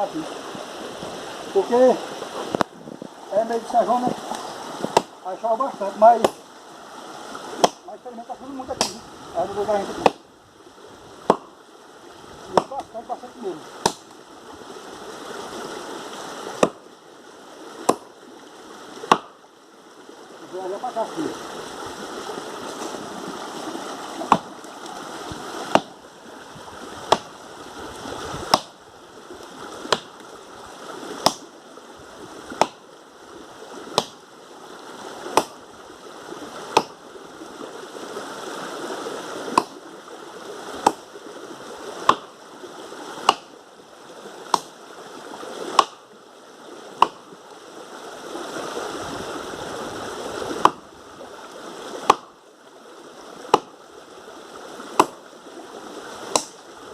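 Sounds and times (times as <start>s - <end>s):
axe chopping wood: 4.8s - 5.2s, 6.2s - 6.5s, 7.6s - 7.9s, 8.7s - 9.0s, 10.0s - 10.2s, 11.2s - 11.6s, 12.5s - 12.9s, 13.8s - 14.2s, 16.6s - 16.8s, 17.8s - 18.1s, 19.0s - 19.4s, 24.2s - 24.6s, 25.6s - 26.0s, 27.1s - 27.3s, 28.5s - 28.8s, 29.8s - 30.2s, 31.2s - 31.5s, 32.6s - 32.8s, 33.9s - 34.2s, 35.3s - 35.6s, 36.7s - 37.0s, 39.5s - 39.8s, 40.8s - 41.1s, 42.0s - 42.4s, 43.2s - 43.5s, 44.5s - 44.8s, 45.7s - 46.0s, 47.0s - 47.2s, 50.6s - 50.8s, 52.0s - 52.4s, 53.5s - 53.8s, 55.0s - 55.2s, 56.3s - 56.6s.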